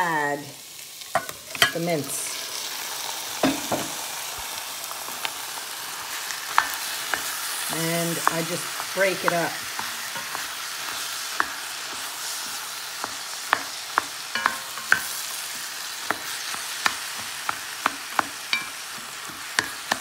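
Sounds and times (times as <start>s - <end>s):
meat and onions sizzling: 0.0s - 20.0s
wooden spoon knocking on pot: 3.4s - 4.0s, 8.0s - 15.2s, 16.0s - 20.0s.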